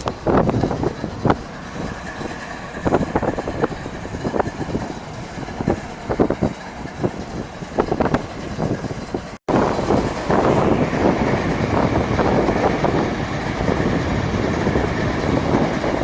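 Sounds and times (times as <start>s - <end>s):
machine engine rumble: 0.0s - 16.0s.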